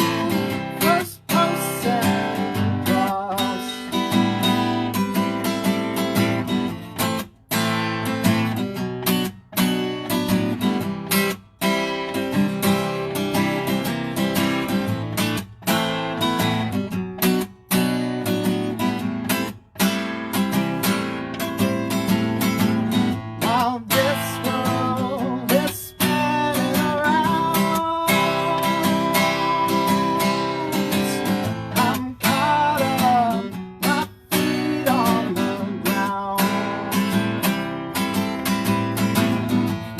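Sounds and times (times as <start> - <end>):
acoustic guitar strumming: 0.0 - 39.9.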